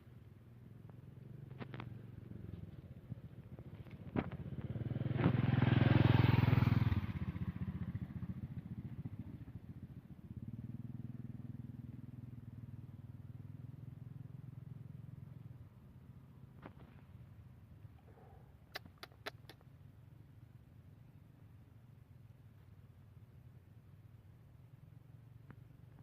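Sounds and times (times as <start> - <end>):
motorcycle engine passing by: 0.0 - 18.5.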